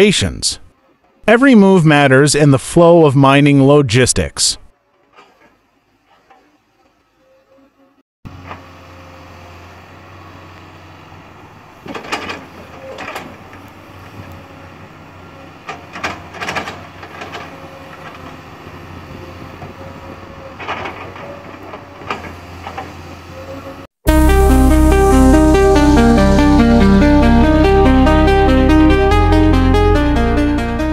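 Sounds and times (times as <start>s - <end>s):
excavator diesel engine running: 8.3s - 30.9s.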